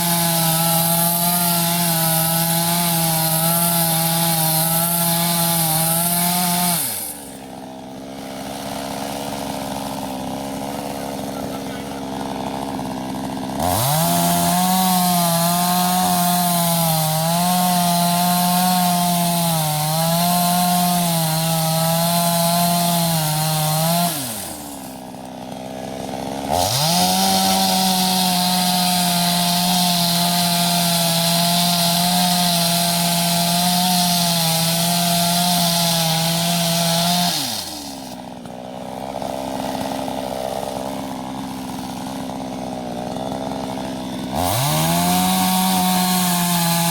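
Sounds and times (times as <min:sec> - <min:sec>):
chainsaw revving: 0:00.0 - 0:46.9.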